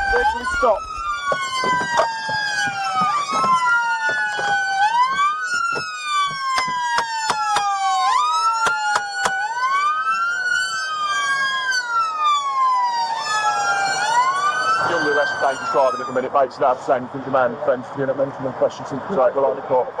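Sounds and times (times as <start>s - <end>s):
police sirens wailing: 0.0s - 19.8s
sharp clicks: 8.6s - 9.4s.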